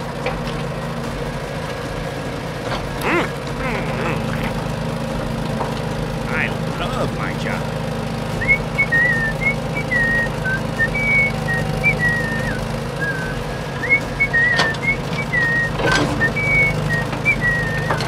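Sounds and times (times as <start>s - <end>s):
low engine hum: 0.0s - 18.0s
person whistling a tune: 8.4s - 18.0s.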